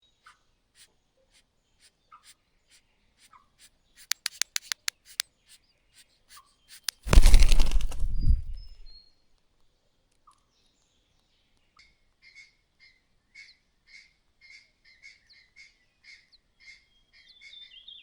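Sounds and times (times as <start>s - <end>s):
bird clattering clicks: 4.1s - 5.2s, 6.8s - 8.9s
rough rustling burst: 6.9s - 8.9s.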